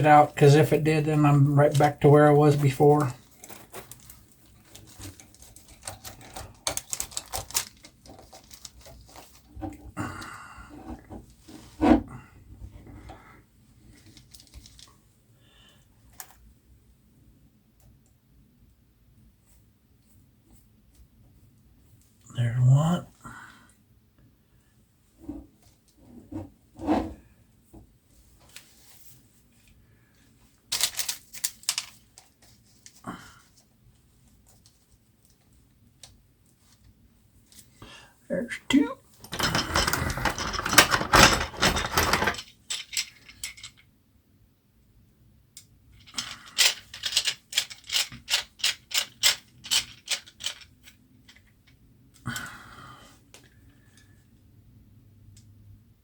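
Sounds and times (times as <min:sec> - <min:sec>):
small parts clicking and rattling: 0:01.7 - 0:09.8, 0:13.9 - 0:14.9, 0:30.7 - 0:33.0, 0:39.2 - 0:43.9, 0:45.6 - 0:51.8.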